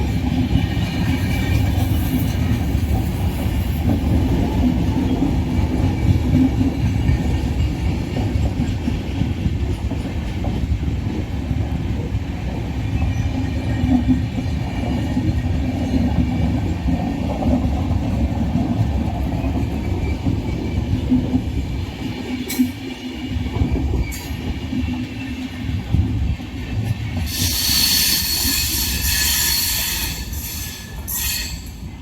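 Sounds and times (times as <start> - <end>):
train coaches rumbling past: 0.0 - 32.0
high-pitched wheel screech: 27.3 - 31.7.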